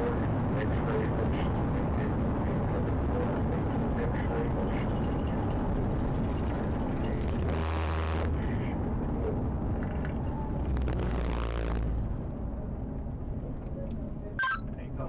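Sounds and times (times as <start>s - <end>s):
vehicle engine and road noise: 7.1s - 15.0s.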